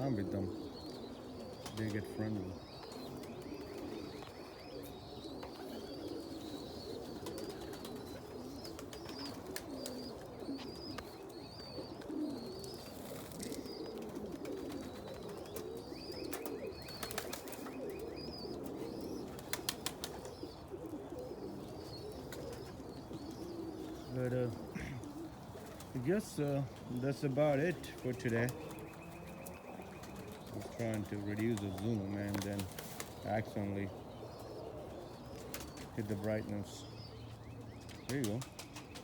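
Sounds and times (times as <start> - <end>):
pigeons cooing: 0.0 - 39.0.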